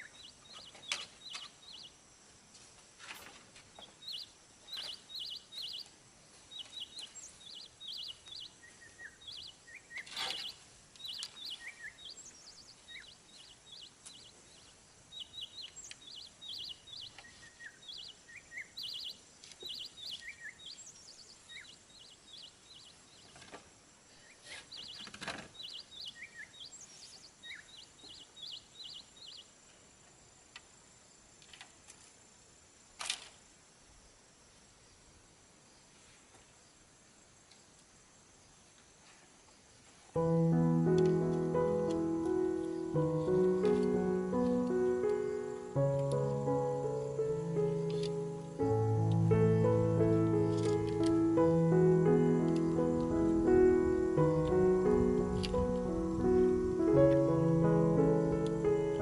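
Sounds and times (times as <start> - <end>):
birds chirping: 0.0 - 2.1, 3.8 - 23.4, 24.2 - 29.5, 40.2 - 59.0.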